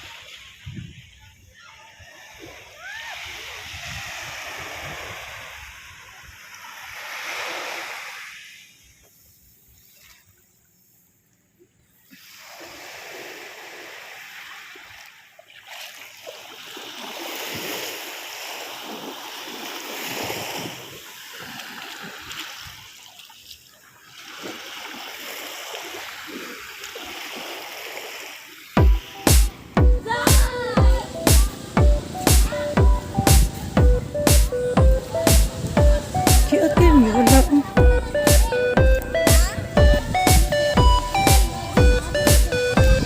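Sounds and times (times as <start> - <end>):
sea waves washing onto beach: 0.0 - 9.2, 12.0 - 43.0.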